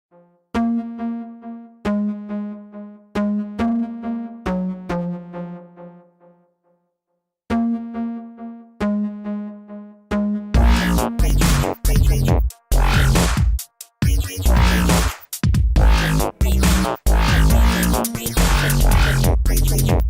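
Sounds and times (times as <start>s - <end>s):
synthesizer chords: 0.1s - 6.5s, 7.5s - 13.4s, 14.0s - 15.2s, 15.8s - 20.0s.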